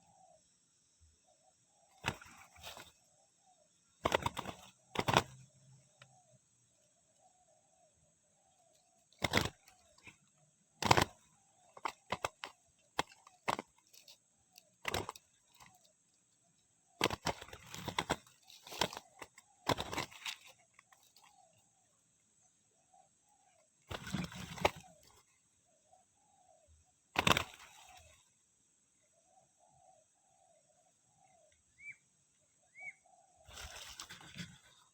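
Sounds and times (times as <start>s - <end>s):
doves flapping and clattering: 4.0s - 5.5s, 9.1s - 14.1s, 14.8s - 15.8s, 17.0s - 21.2s.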